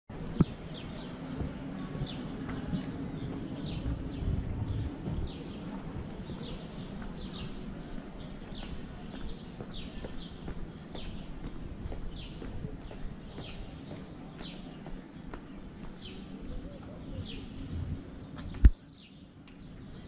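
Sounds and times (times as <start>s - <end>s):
street ambience hum: 0.1s - 20.0s.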